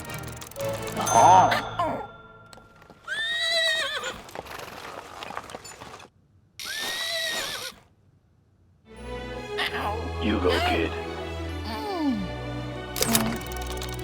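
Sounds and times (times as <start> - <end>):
horse whinnying: 3.1 - 4.7, 6.6 - 7.9.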